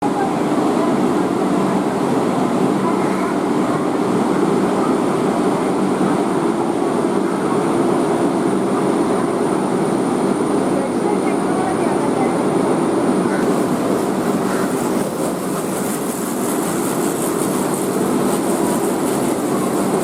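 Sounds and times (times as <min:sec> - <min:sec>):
train rumble: 0:13.2 - 0:20.0.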